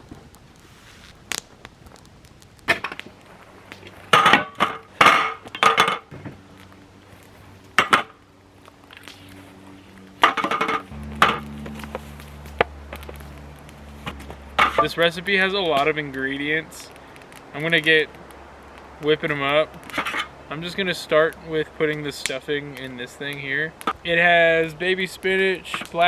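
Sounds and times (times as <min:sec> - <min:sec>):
metal cookware clattering: 0:02.7 - 0:06.4
steady low hum: 0:02.7 - 0:20.7.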